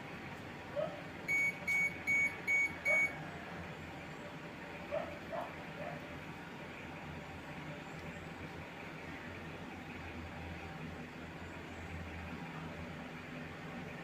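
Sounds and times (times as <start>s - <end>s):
short electronic beeps: 1.3s - 3.2s.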